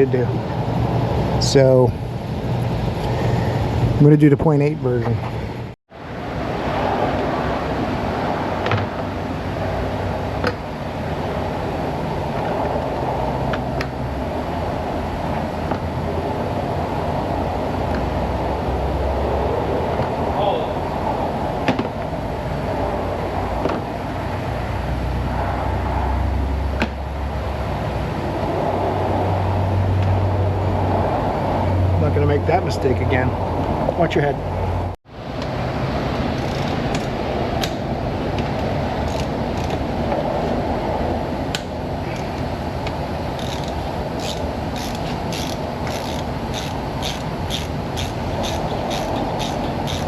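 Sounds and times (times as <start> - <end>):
low mechanical drone: 0.0 - 50.0
steady rushing noise: 0.0 - 50.0
metallic clicks of hand tools: 43.4 - 50.0.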